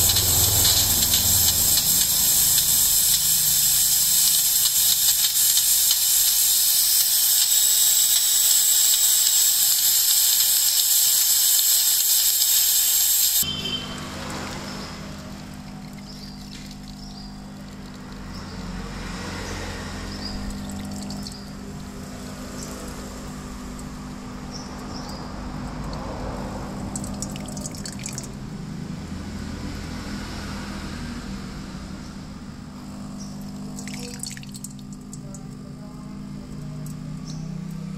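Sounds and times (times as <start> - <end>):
liquid running: 0.0 - 13.4, 14.0 - 18.8, 20.2 - 28.4, 32.8 - 37.9
steam wand hissing: 0.0 - 13.8
coffee machine pump humming: 0.0 - 31.3, 31.9 - 37.9.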